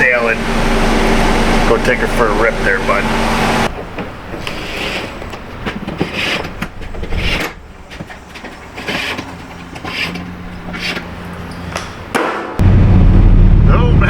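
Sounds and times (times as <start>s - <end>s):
steady low hum: 0.0s - 4.4s, 9.7s - 14.0s
road and tyre noise in car: 0.0s - 14.0s
tyres thumping on bumps: 3.6s - 12.6s.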